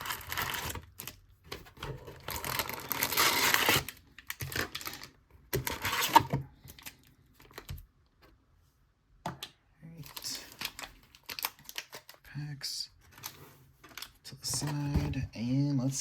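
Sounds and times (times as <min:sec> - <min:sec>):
foil wrappers crinkling: 0:10.0 - 0:12.2.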